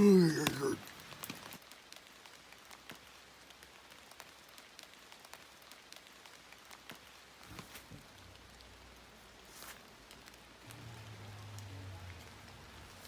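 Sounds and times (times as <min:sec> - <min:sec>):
faint rain falling: 0:00.0 - 0:13.0
ticks of single raindrops: 0:00.2 - 0:09.2.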